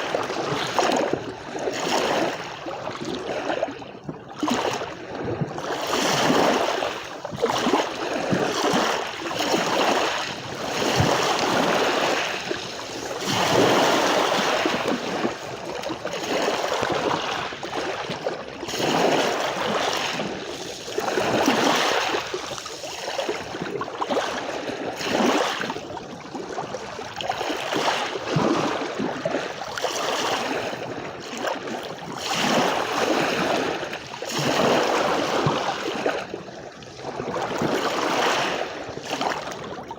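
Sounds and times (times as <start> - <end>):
sea waves washing onto beach: 5.8 - 25.9.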